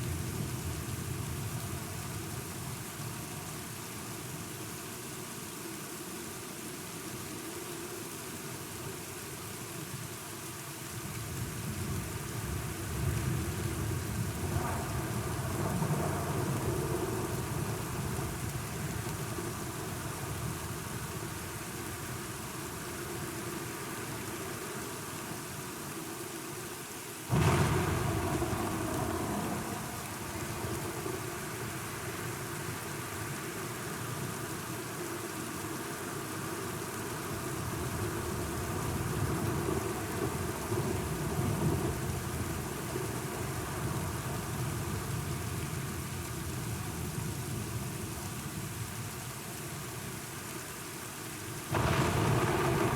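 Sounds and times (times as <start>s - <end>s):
steady rain falling: 0.0s - 52.9s
thunder clap rumbling: 27.3s - 31.5s, 51.7s - 52.9s.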